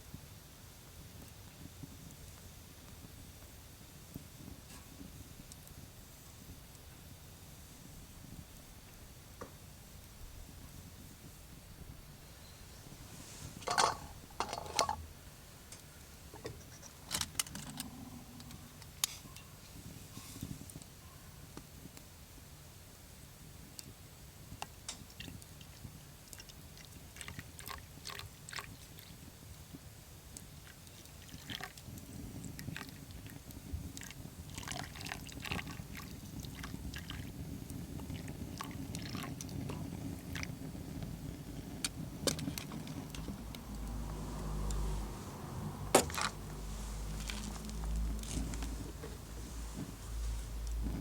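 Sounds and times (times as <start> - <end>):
wood fire crackling: 28.7 - 51.0
milk pouring into cup: 34.0 - 37.3, 38.2 - 39.5.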